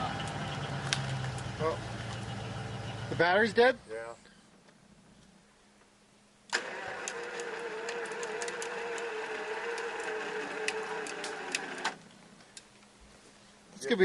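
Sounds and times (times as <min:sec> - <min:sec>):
electric winch motor whirring: 0:06.5 - 0:12.0.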